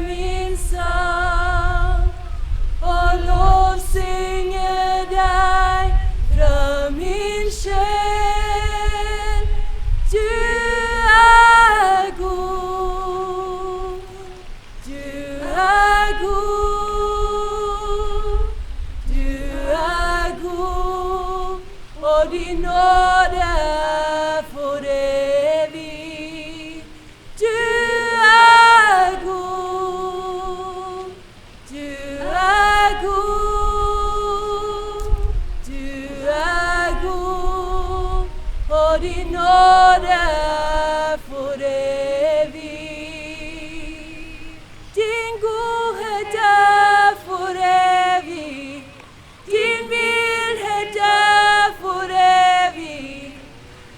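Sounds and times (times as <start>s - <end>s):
person singing with vibrato: 0.0s - 53.9s.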